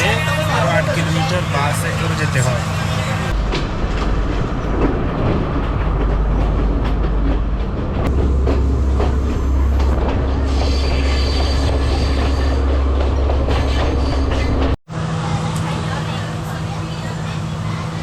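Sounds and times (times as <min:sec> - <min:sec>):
train rumbling on track: 0:00.0 - 0:18.0.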